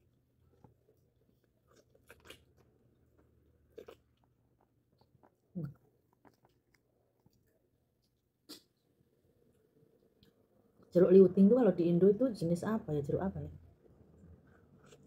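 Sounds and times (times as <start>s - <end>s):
person chewing orange segments: 0.0s - 8.8s.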